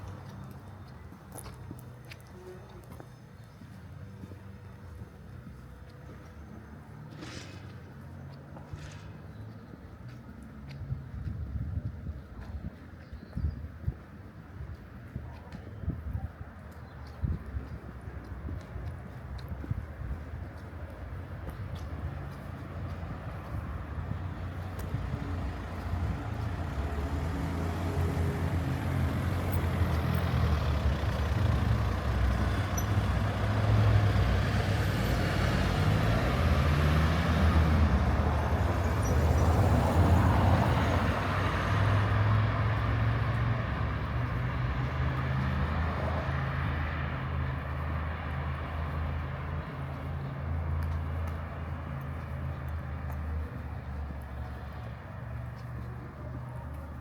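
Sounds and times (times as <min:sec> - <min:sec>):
road noise: 0:00.0 - 0:57.0.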